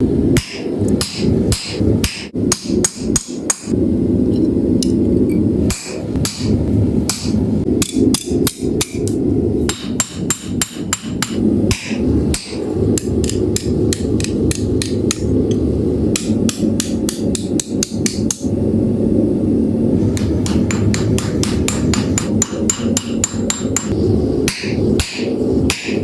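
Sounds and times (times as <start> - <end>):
steady low hum: 0.0 - 26.0
hammer blows: 20.0 - 26.0.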